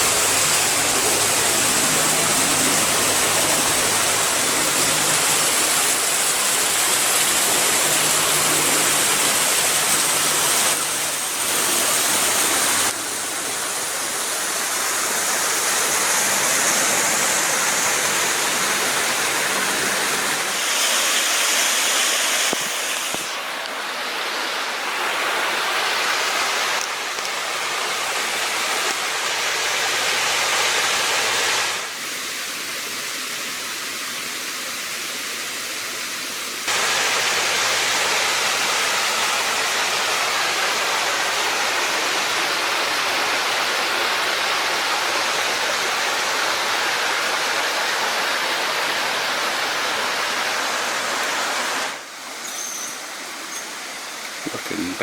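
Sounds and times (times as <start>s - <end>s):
creek water rushing: 0.0s - 55.0s.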